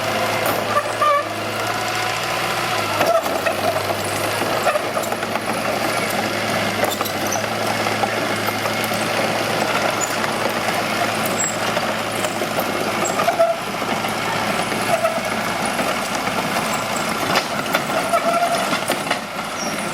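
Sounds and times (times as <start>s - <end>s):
bulldozer diesel engine running: 0.0s - 19.9s
short squeals and clicks: 0.4s - 1.4s, 3.0s - 5.4s, 6.8s - 7.5s, 9.9s - 10.3s, 11.2s - 12.4s, 13.0s - 13.6s, 14.8s - 15.3s, 16.7s - 19.9s.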